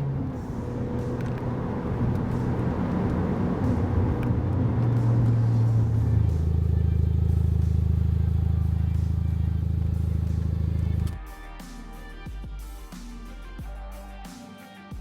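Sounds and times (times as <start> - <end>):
car exhaust drone: 0.0 - 11.2.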